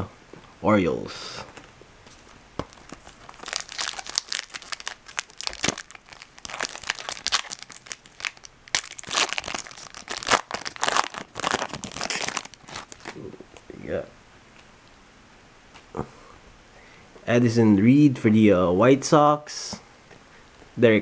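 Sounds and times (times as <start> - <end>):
foil wrapper crinkling: 2.6 - 13.2.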